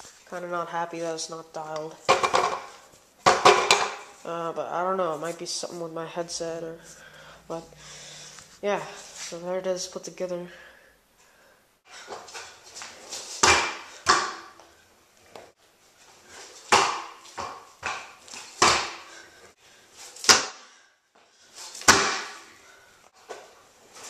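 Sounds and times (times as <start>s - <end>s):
scooter hitting the ground: 2.1s - 4.1s, 13.4s - 14.5s, 21.8s - 22.5s.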